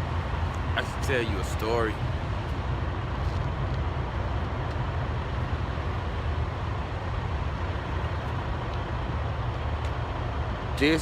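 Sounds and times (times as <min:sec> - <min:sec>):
road noise: 0:00.0 - 0:11.0.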